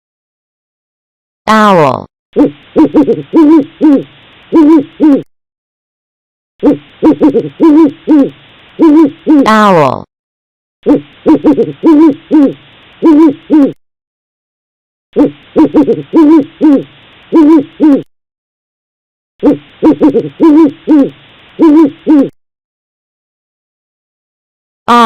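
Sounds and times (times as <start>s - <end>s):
owl hooting: 2.4s - 5.3s, 6.6s - 9.7s, 10.8s - 13.8s, 15.2s - 18.1s, 19.4s - 22.4s.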